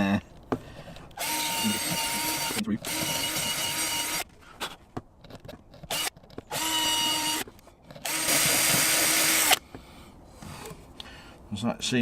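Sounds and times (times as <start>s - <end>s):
drill spinning wire brush: 1.2s - 4.3s, 5.9s - 7.4s, 8.0s - 9.6s.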